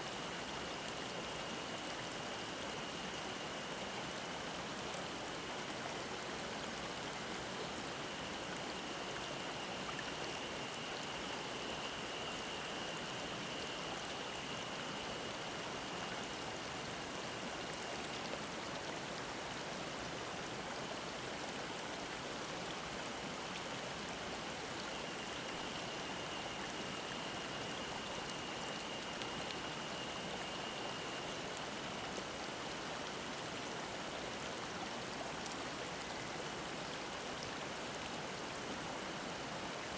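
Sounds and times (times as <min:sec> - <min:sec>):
stream running over rocks: 0:00.0 - 0:39.9
cicada droning: 0:07.6 - 0:17.8, 0:24.5 - 0:32.9.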